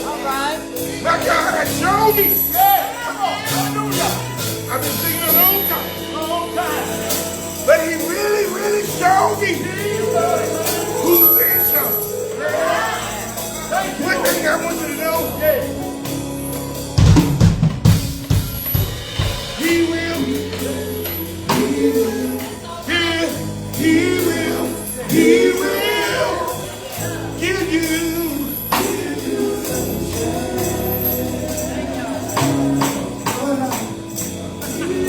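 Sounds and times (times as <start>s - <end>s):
bass: 0.0s - 35.0s
drums: 0.0s - 35.0s
gospel group singing: 0.0s - 35.0s
tambourine: 0.0s - 35.0s
heavy low drum hits: 16.1s - 22.1s.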